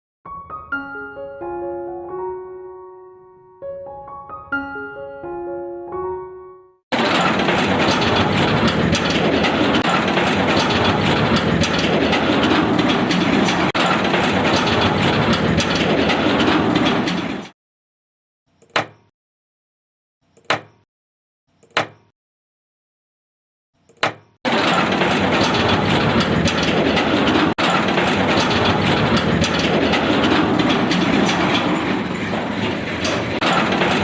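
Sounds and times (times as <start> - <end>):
loud mechanical rattling: 6.9 - 17.6, 24.5 - 34.0.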